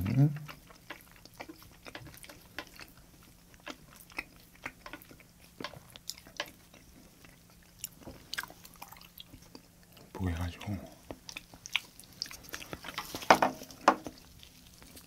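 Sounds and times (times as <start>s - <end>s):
mouth clicks while chewing: 0.4s - 10.0s.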